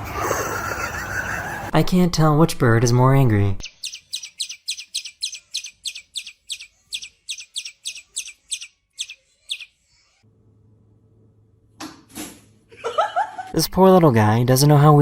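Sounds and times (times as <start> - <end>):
birds chirping sharply: 3.6 - 10.1.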